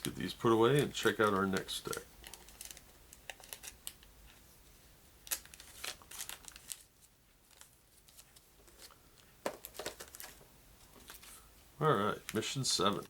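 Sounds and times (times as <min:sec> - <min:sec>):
cards tapping and rustling: 0:07.5 - 0:11.4.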